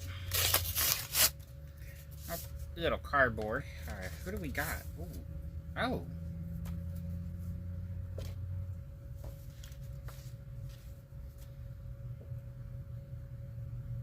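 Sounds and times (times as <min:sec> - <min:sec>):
low electrical hum: 0:00.0 - 0:14.0
paper and cardboard rustling: 0:03.8 - 0:04.8, 0:09.2 - 0:11.5.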